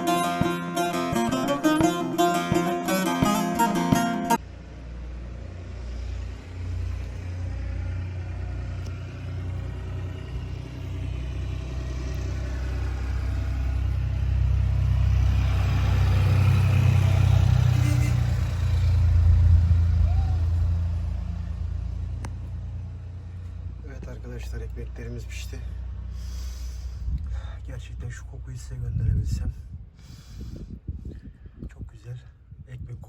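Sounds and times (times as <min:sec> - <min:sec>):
low rumble: 0:18.2 - 0:23.9.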